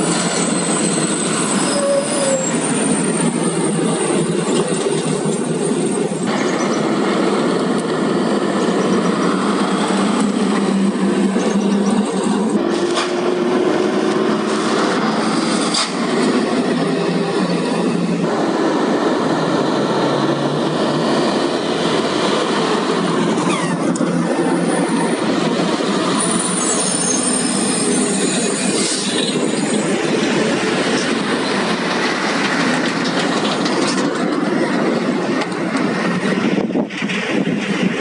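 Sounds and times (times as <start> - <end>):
high squeal: 0.0 - 6.9, 26.1 - 30.0
haul truck diesel engine din: 6.2 - 36.6.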